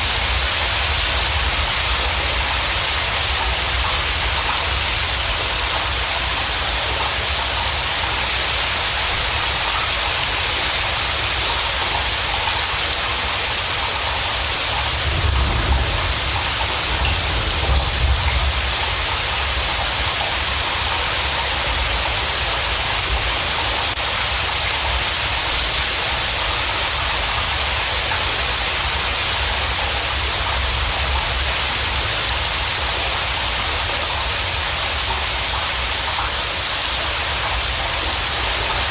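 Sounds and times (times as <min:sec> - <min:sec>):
steady rain falling: 0:00.0 - 0:38.9
low rumble: 0:14.8 - 0:19.8.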